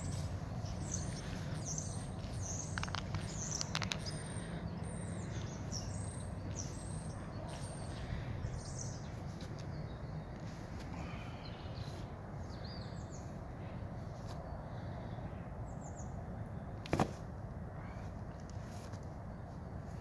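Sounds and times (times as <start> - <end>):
bird chirping: 0.0 - 13.7
low outdoor rumble: 0.0 - 20.0.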